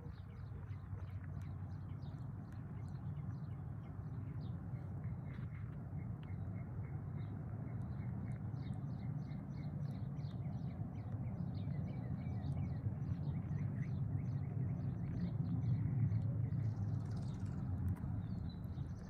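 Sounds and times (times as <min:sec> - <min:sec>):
low outdoor background rumble: 0:00.0 - 0:19.0.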